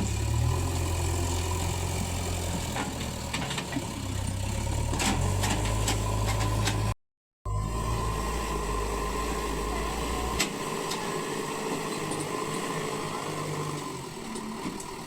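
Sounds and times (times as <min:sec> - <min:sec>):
diesel engine idling: 0:00.0 - 0:06.9.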